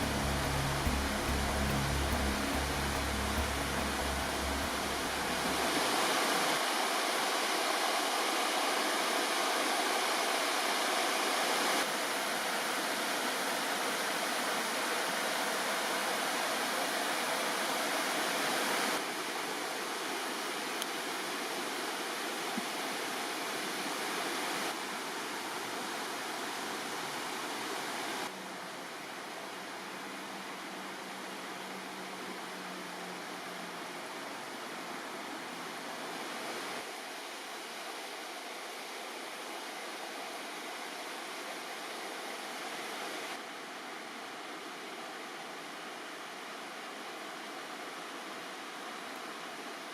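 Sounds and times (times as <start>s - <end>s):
background music: 0.0s - 5.7s
river water rushing: 0.0s - 49.9s.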